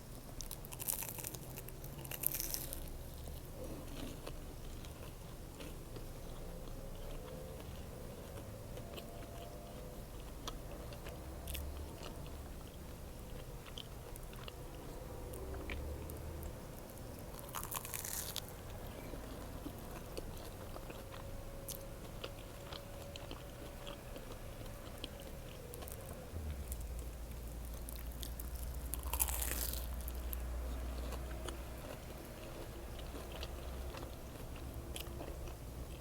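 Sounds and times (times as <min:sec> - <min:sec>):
person chewing a sandwich: 0:00.0 - 0:36.0.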